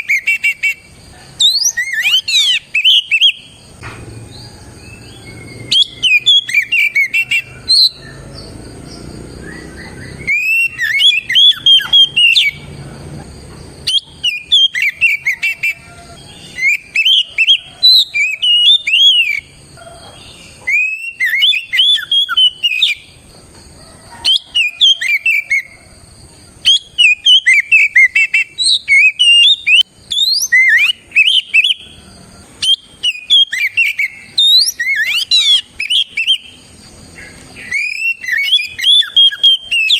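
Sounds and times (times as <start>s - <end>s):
bird singing whistled phrases: 0.0s - 3.6s, 4.4s - 8.5s, 9.4s - 12.7s, 13.9s - 19.5s, 20.6s - 23.1s, 26.6s - 31.9s, 32.6s - 36.6s, 37.6s - 39.9s.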